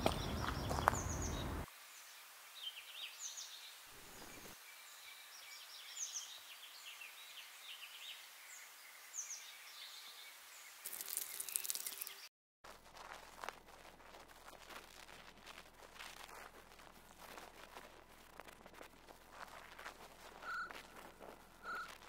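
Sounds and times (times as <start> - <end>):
small birds chirping: 0.0 - 12.3.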